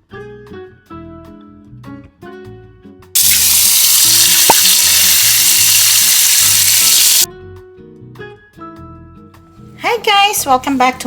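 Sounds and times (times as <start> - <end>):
loud steady hiss: 3.2 - 7.3.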